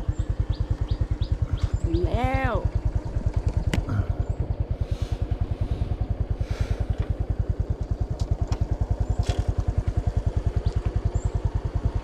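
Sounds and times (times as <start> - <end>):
motorcycle engine putter: 3.0 - 4.5, 6.8 - 11.4.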